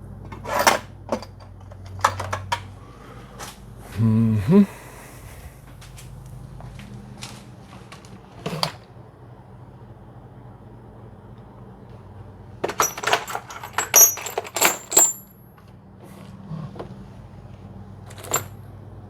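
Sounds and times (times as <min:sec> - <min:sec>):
low machine hum: 0:00.0 - 0:14.5.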